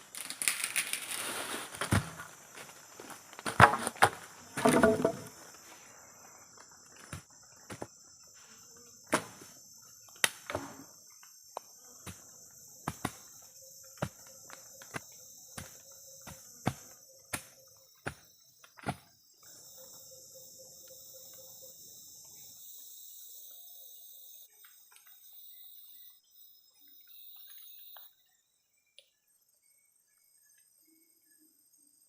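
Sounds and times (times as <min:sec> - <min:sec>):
crunching rustle: 0:00.0 - 0:04.6
crickets chirring: 0:00.0 - 0:32.0.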